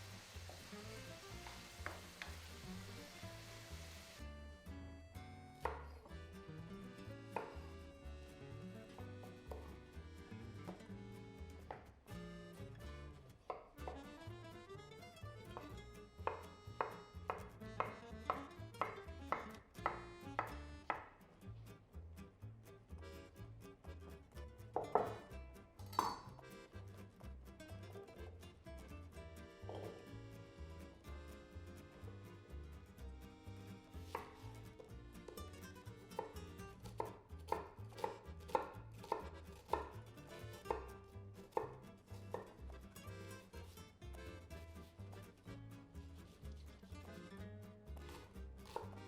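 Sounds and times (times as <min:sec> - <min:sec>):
soft background music: 0:00.0 - 0:21.2, 0:29.2 - 0:45.3, 0:48.0 - 0:49.0
knife chopping on cutting board: 0:05.6 - 0:06.1, 0:07.4 - 0:07.6, 0:15.5 - 0:21.1, 0:24.8 - 0:25.2, 0:29.7 - 0:30.0, 0:34.1 - 0:34.9, 0:36.2 - 0:39.9, 0:41.5 - 0:42.6, 0:48.0 - 0:49.0.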